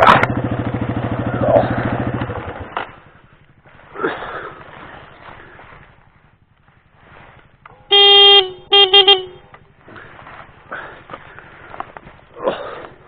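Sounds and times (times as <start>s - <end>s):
motorcycle engine idling: 0.0s - 13.0s
motorcycle horn honking: 7.6s - 9.7s.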